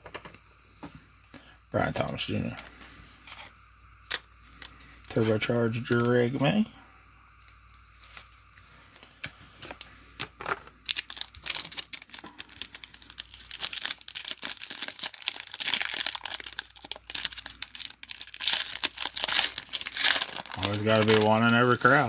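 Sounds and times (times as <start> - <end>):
foil wrapper crinkling and tearing: 9.7 - 22.0.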